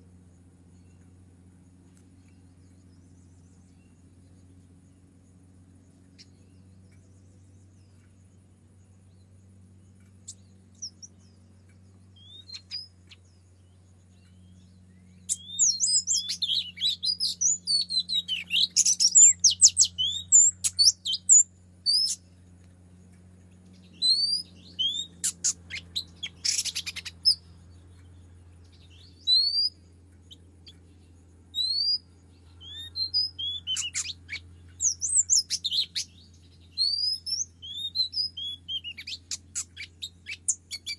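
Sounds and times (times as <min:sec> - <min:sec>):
bird calling and singing: 0:01.8 - 0:40.9.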